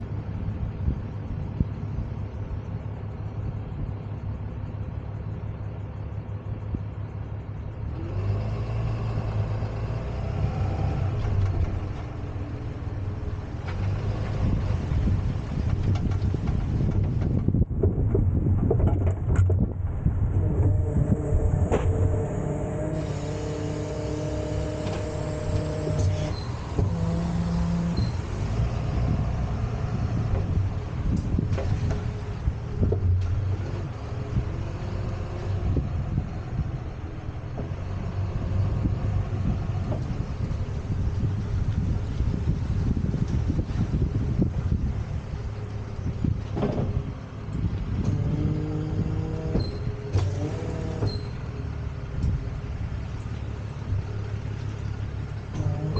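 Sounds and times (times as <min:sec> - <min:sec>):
rising engine whine: 0:00.0 - 0:55.9
tow truck engine rumbling: 0:00.0 - 0:55.9
humming tones: 0:19.2 - 0:42.2, 0:44.0 - 0:55.9.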